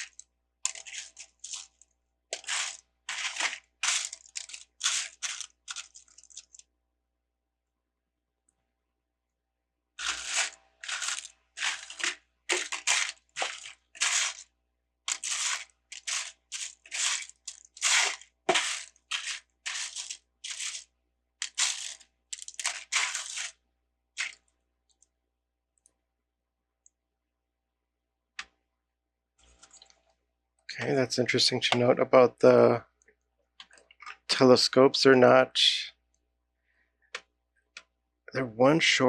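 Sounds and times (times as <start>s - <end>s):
plastic bricks rummaged by hand: 0.0s - 6.7s, 10.0s - 14.5s, 15.1s - 23.6s, 24.2s - 24.5s.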